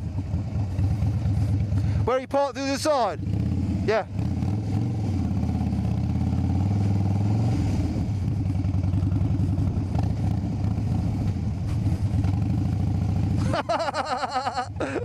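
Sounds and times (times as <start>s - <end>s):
motorcycle engine idling: 0.0s - 4.4s, 8.2s - 14.0s.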